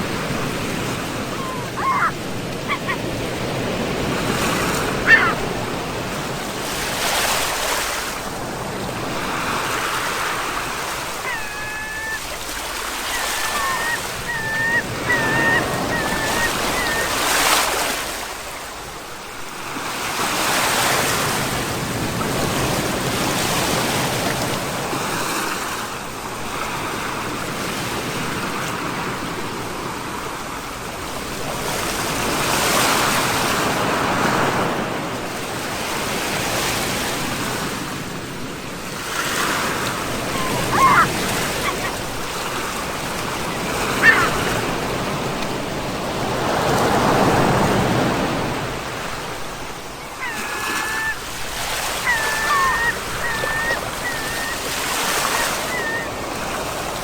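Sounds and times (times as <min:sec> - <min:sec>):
surf breaking on shore: 0:00.0 - 0:18.9, 0:31.8 - 0:57.0
high wavering calls: 0:01.2 - 0:03.2, 0:05.1 - 0:05.4, 0:11.1 - 0:17.8, 0:40.1 - 0:42.6, 0:43.4 - 0:44.5, 0:50.0 - 0:56.3.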